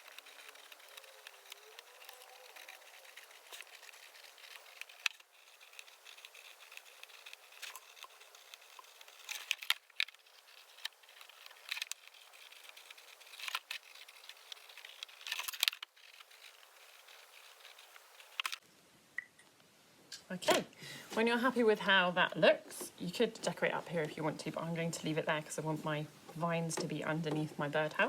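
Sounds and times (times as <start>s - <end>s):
pen scratching on plastic: 0.0s - 18.6s.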